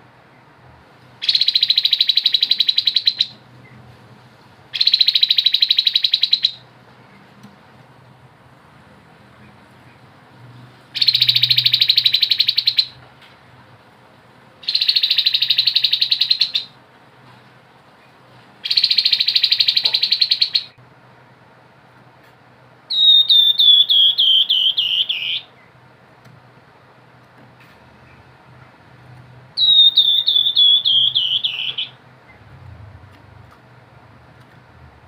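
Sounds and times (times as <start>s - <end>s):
bird rattling trills: 4.7s - 6.6s, 14.6s - 16.7s.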